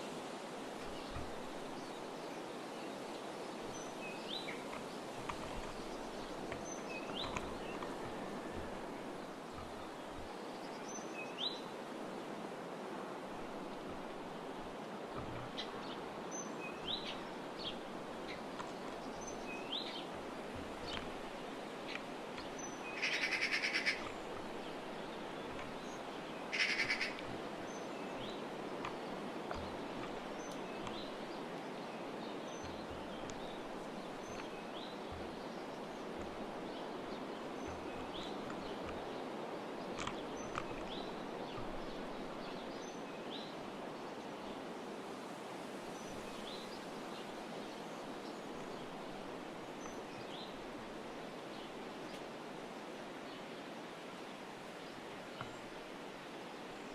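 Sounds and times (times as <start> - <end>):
outdoor hiss: 0.0 - 56.9
small birds chirping: 0.8 - 11.8, 13.2 - 44.3
rapid rattling bird calls: 13.4 - 31.8.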